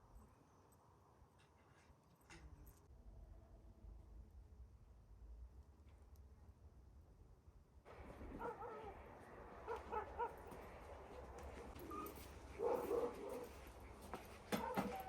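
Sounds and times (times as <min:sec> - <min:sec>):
steady background noise: 0:07.9 - 0:14.7.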